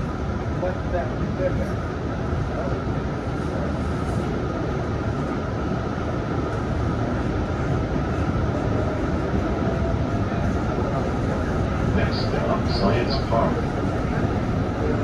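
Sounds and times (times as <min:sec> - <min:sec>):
rumble of train wheels on rail: 0:00.0 - 0:15.0
faint steady hum: 0:11.0 - 0:15.0.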